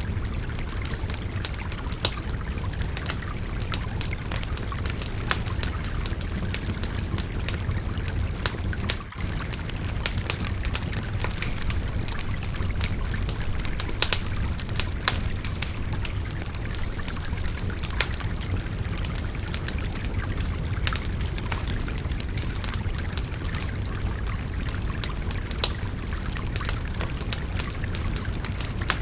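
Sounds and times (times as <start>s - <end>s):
river babbling: 0.0s - 21.9s
bonfire crackling: 0.0s - 29.0s.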